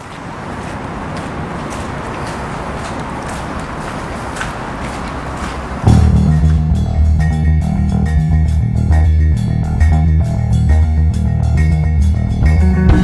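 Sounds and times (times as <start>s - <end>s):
bass guitar line: 5.9s - 13.0s
plucked electric guitar: 5.9s - 13.0s
rock music: 5.9s - 13.0s.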